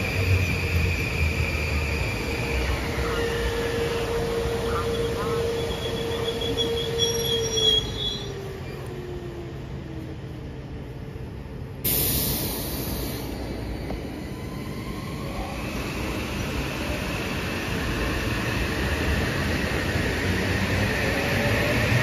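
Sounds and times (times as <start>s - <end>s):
train motor whine: 0.0s - 9.1s
train wheels rumbling on rails: 0.0s - 22.0s
hiss: 11.8s - 13.5s.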